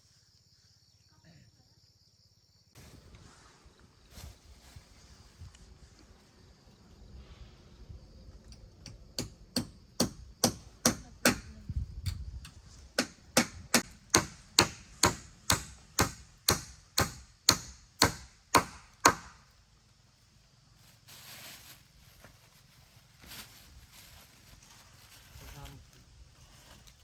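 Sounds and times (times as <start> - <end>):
hammer blows on wood: 13.0 - 19.4.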